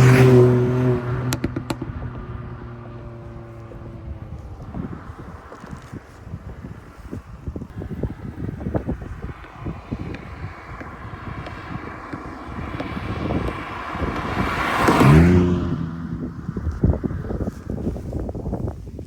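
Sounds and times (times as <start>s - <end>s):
car engine driving past: 0.0s - 17.8s.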